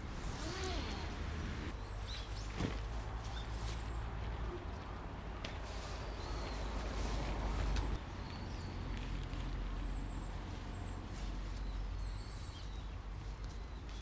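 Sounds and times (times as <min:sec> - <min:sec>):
small birds whistling calls: 0:06.0 - 0:06.9.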